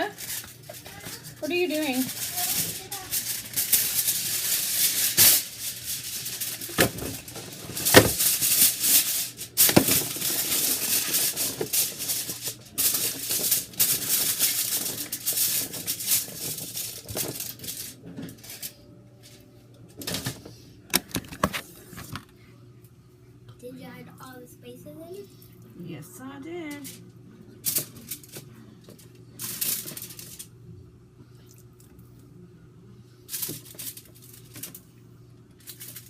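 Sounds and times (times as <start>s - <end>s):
aluminium foil crinkling and tearing: 0.0s - 19.4s, 27.6s - 30.5s, 33.2s - 34.8s, 35.6s - 36.0s.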